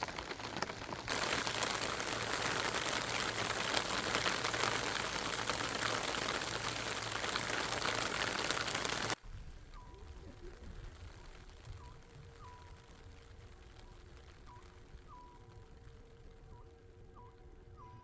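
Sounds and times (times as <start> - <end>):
rain falling: 0.0 - 16.6.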